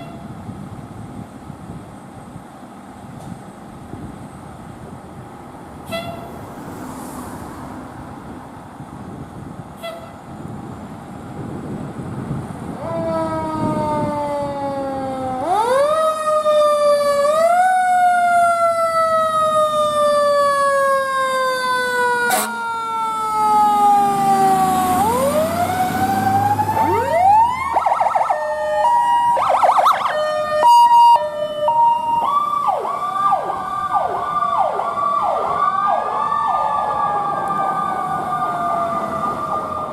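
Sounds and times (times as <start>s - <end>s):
emergency vehicle siren: 0.0s - 0.5s, 11.4s - 39.9s.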